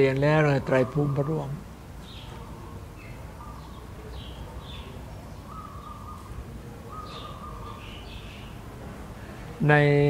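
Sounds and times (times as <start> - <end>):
birds chirping: 0.0 - 10.0
low room noise rumble: 0.0 - 10.0
whistled bird notes: 0.8 - 8.6.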